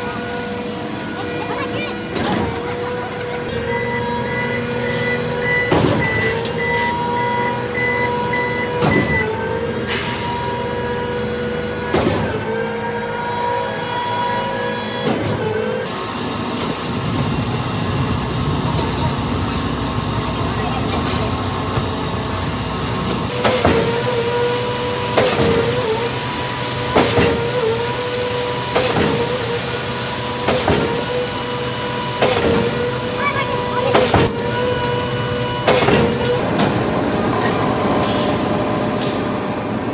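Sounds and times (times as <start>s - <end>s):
diesel truck engine running: 0.0s - 39.9s
reverse alarm beeping: 3.5s - 10.6s, 38.0s - 39.8s
hiss of released air: 9.9s - 10.6s.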